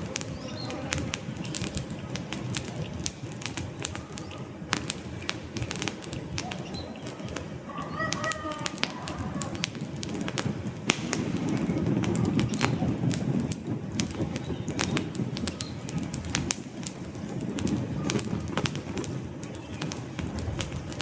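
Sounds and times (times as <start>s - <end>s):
fire crackling and popping: 0.0s - 21.0s
low rumble of flames: 0.0s - 21.0s.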